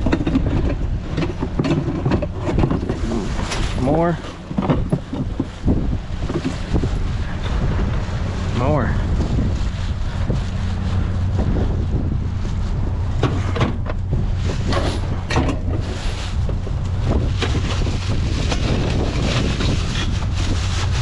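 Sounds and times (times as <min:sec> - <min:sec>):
knocks of things being handled: 0:00.0 - 0:06.6
wind buffeting microphone: 0:00.0 - 0:21.0.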